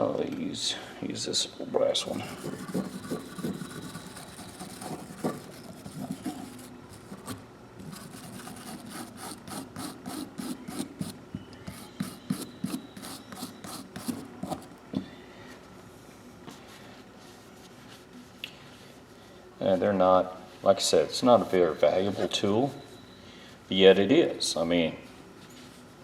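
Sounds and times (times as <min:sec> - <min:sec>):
wire brush scrubbing metal: 0:02.0 - 0:11.1.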